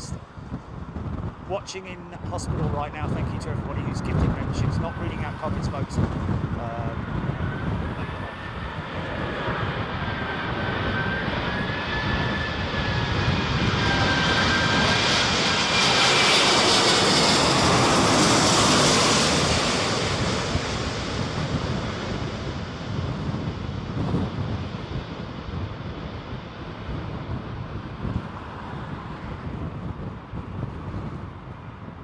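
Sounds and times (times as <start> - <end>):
jet engines flying past: 0.0 - 32.0.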